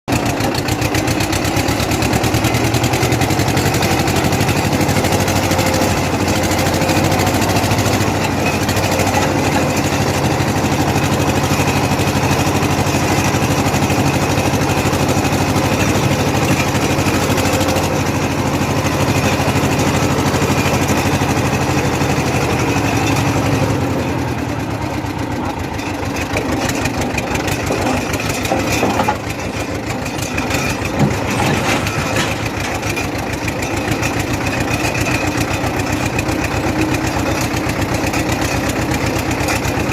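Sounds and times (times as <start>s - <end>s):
tractor engine running: 0.1s - 39.9s.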